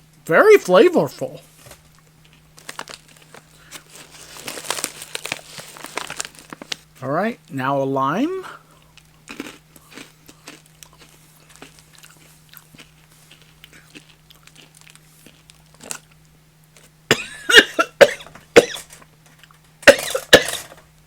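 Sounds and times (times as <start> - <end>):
crunching and chewing candy: 1.7 - 7.0, 8.5 - 17.0
person coughing: 17.1 - 19.0, 19.8 - 20.8.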